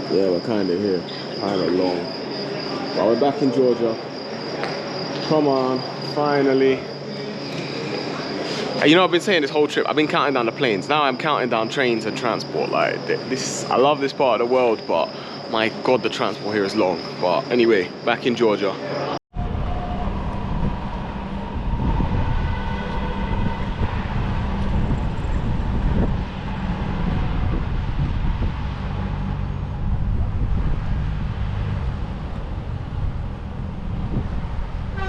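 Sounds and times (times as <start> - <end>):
train rumbling on track: 19.4 - 35.0.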